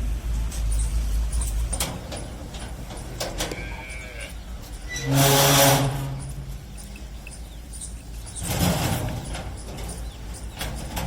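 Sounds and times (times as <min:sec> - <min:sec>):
cow mooing: 0:03.4 - 0:06.2.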